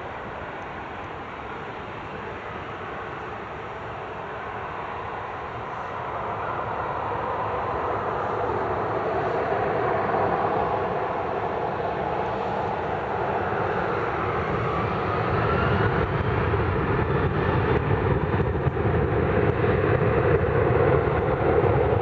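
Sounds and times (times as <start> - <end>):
jet engines rushing: 0.0 - 22.0
rising engine whine: 5.2 - 18.8.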